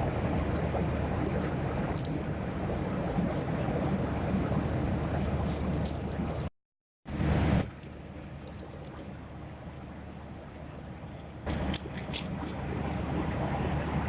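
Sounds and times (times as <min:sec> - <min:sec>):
airliner cabin hum: 0:00.0 - 0:06.5, 0:07.1 - 0:14.0
small clicks and rattles: 0:00.5 - 0:03.5, 0:04.8 - 0:06.5, 0:07.8 - 0:12.6.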